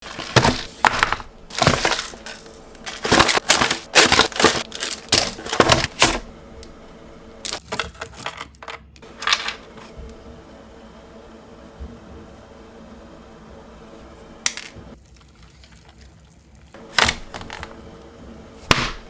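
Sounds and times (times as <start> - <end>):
crunching and crinkling: 0.0 - 7.7, 16.8 - 18.0.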